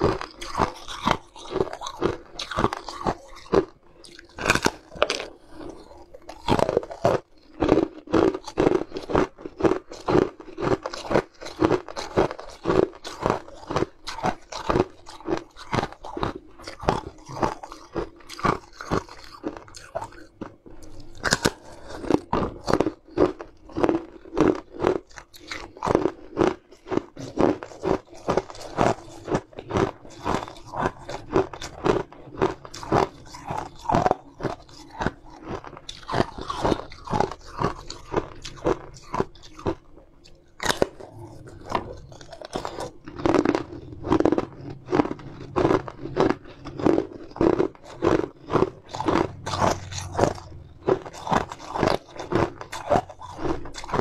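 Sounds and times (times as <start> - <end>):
crunching hard candy: 0.0 - 54.0.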